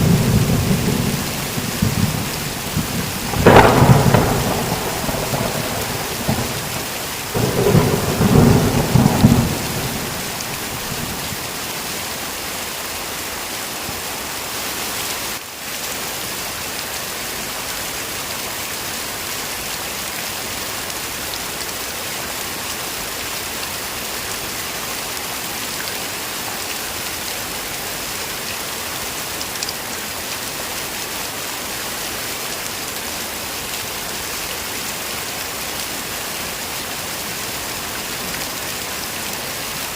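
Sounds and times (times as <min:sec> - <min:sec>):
thunder rumble: 0:00.0 - 0:11.6
heavy rain falling: 0:00.0 - 0:39.9.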